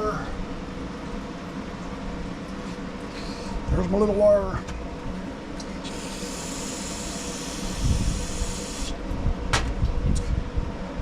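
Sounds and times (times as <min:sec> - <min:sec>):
steady low hum: 0:00.0 - 0:11.0
pressurised spray hiss: 0:05.8 - 0:09.0.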